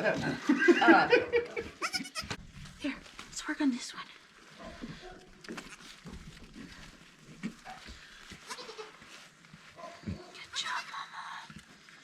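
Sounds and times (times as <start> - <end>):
goats bleating faintly: 1.8 - 2.4.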